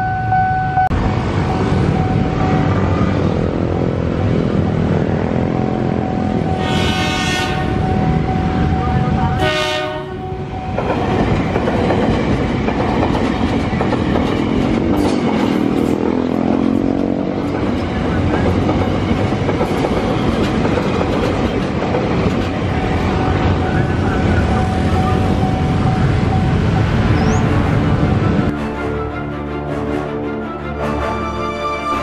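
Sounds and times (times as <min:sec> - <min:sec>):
train wheels rumbling on rails: 0:01.0 - 0:28.6
wheels clacking: 0:10.7 - 0:26.4.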